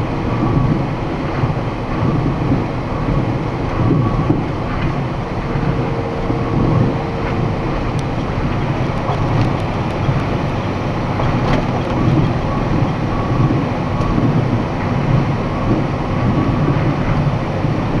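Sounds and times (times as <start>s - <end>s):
engine and road noise in cab: 0.0s - 18.0s
faint rattles: 5.6s - 13.3s.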